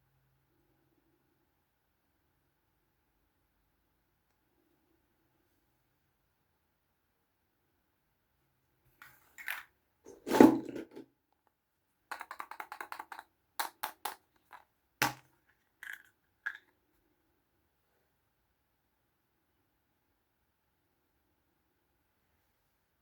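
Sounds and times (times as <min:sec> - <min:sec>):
plastic toy pieces clicking: 0:12.1 - 0:15.2.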